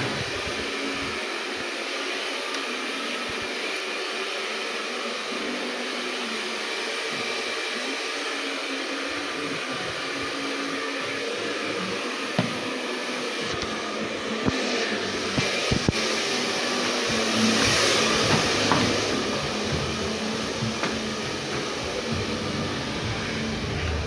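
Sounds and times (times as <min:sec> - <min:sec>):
air conditioners running: 0:00.0 - 0:01.8, 0:09.1 - 0:24.0.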